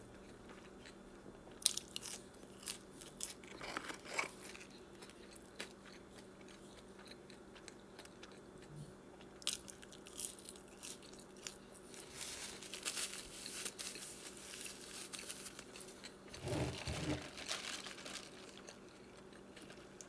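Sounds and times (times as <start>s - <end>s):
chewing with mouth clicks: 0.2s - 11.6s
biting into fries: 0.3s - 20.0s.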